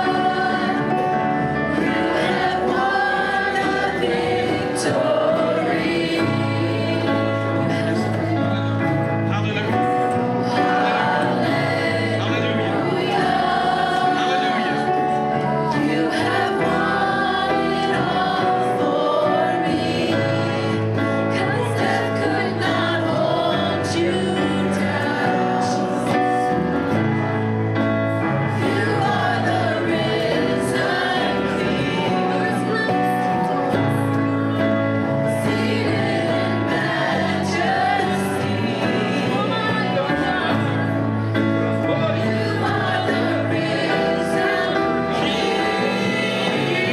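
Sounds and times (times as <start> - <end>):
voices singing gospel song: 0.0 - 9.1, 10.1 - 46.9.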